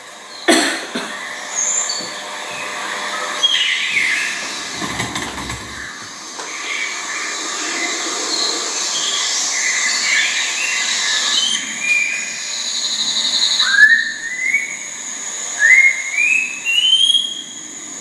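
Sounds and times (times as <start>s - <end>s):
bird whistling song: 3.4s - 7.8s, 8.4s - 18.0s.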